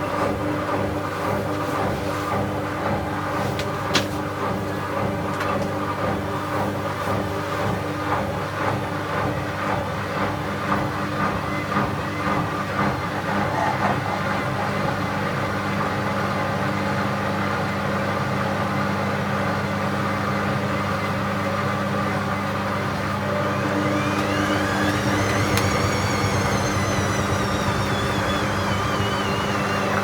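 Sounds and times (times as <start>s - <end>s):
washing machine humming: 0.0s - 30.0s
motor whine rising: 23.2s - 30.0s.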